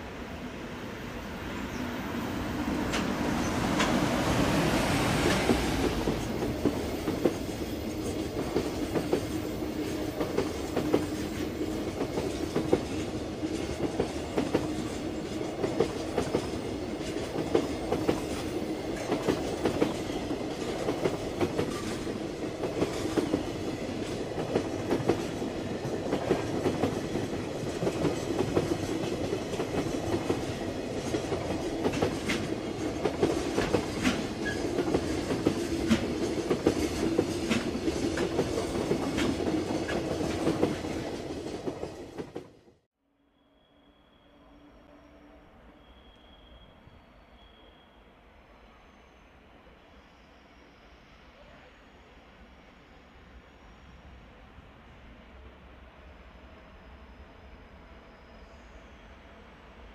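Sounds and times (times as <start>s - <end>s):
freight train wheels clattering: 10.2s - 42.5s.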